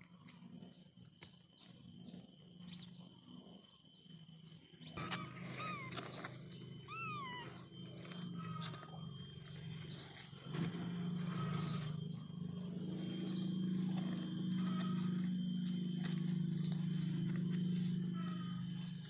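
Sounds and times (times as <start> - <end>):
steady low hum: 0.0 - 19.0
kitten mewing: 6.9 - 8.9.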